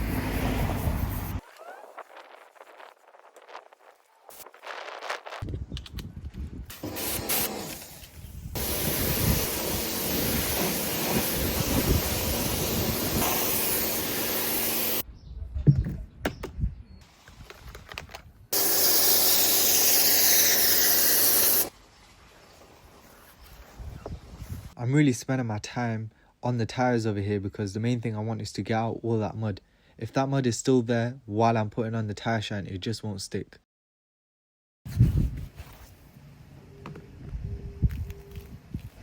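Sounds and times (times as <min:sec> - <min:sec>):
pressure washer spraying: 0:06.7 - 0:15.0, 0:18.6 - 0:21.7.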